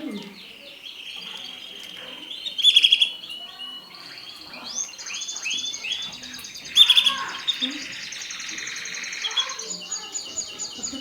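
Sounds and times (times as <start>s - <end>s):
canary singing trills and chirps: 0.0s - 11.0s.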